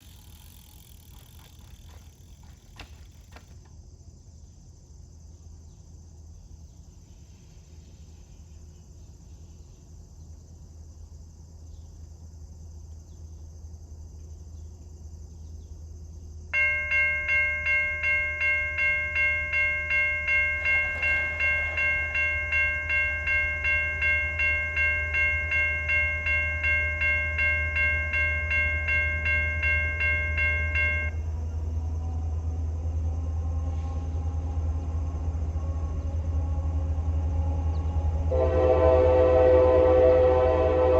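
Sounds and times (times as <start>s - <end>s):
railroad crossing bell ringing: 16.6s - 31.4s.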